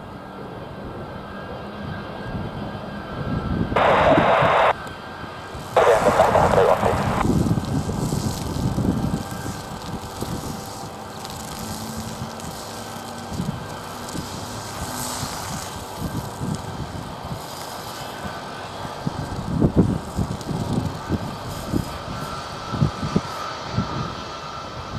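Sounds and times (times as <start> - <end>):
jet engines droning: 0.0 - 24.9
wind buffeting microphone: 5.7 - 17.5, 18.9 - 24.2.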